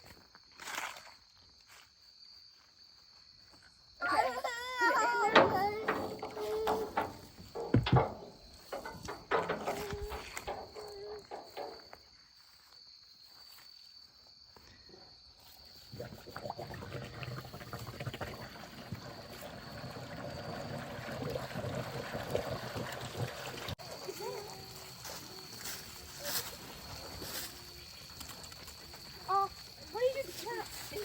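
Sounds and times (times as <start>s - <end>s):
water gushing: 16.0s - 24.6s.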